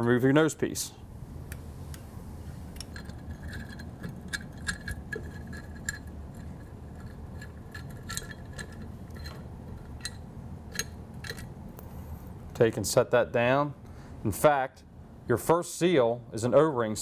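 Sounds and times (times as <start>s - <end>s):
allen wrench clinking on screws: 2.8s - 11.5s.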